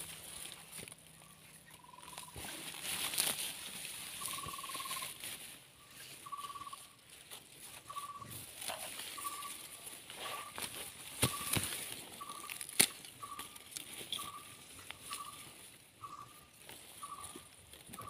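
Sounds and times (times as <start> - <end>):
bird calling buzzy trills: 1.1 - 2.6, 4.0 - 5.2, 5.8 - 7.0, 7.7 - 18.0.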